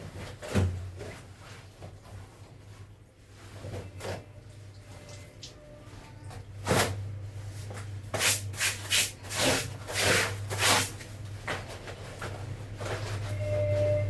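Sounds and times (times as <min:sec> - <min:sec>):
laundry scrubbed by hand: 0:06.6 - 0:11.6.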